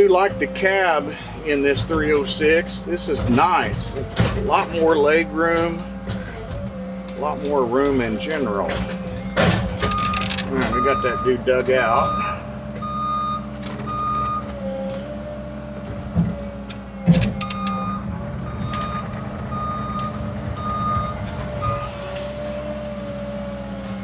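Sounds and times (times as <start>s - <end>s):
excavator diesel engine: 0.0s - 24.0s
hydraulic whine: 0.0s - 24.0s
beeping alarm: 7.3s - 14.6s, 17.0s - 22.0s.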